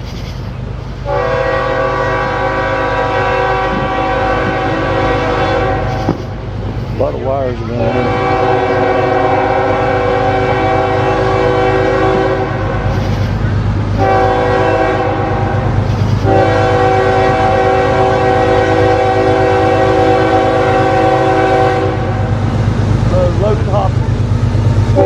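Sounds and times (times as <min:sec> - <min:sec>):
diesel train rumbling: 0:00.0 - 0:25.0
locomotive air horn blasts: 0:01.0 - 0:07.0, 0:07.8 - 0:13.4, 0:14.0 - 0:22.3.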